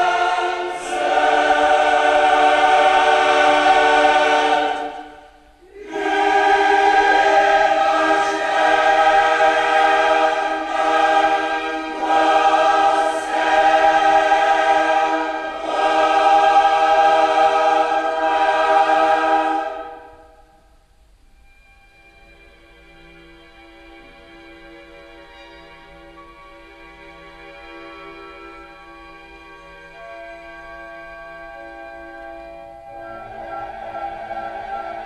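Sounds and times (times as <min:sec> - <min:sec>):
choral singing: 0:00.0 - 0:20.7, 0:32.1 - 0:35.0.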